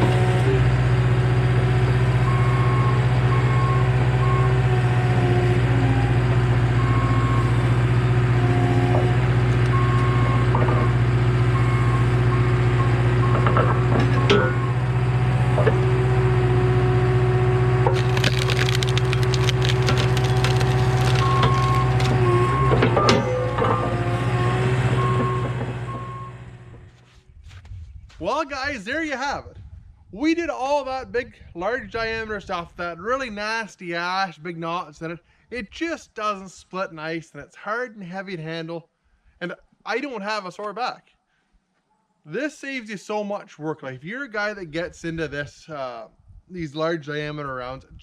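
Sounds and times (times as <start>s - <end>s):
skid steer engine running: 0.0s - 27.1s
wood cracking and splintering: 17.8s - 25.6s
back-up alarm beeping: 21.2s - 24.1s, 24.9s - 26.4s.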